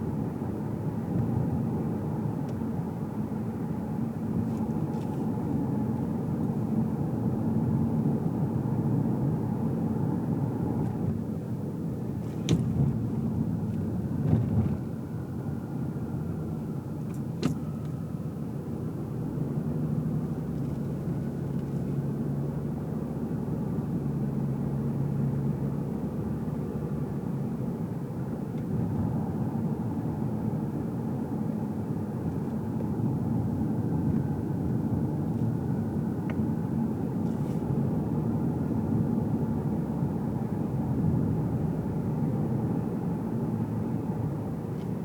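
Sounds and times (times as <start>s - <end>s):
car engine hum: 0.0s - 45.0s.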